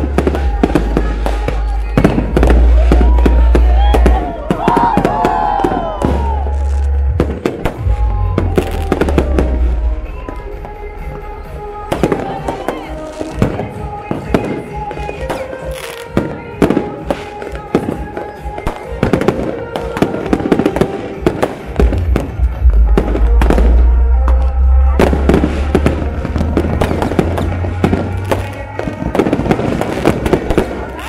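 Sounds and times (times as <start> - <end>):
fireworks bangs and crackles: 0.0 - 31.0
music: 0.0 - 31.0
deep rumble: 5.8 - 13.4, 21.8 - 28.5.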